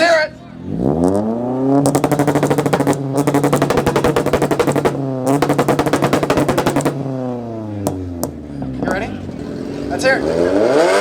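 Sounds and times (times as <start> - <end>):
engine at rev limiter: 0.5 - 11.0
exhaust popping crackle: 1.8 - 8.5.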